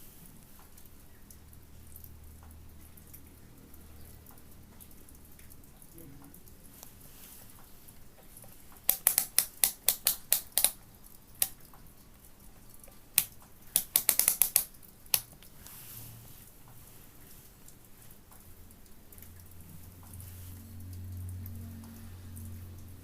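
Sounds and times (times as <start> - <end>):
sharp clicks: 8.8 - 10.8, 13.2 - 15.5.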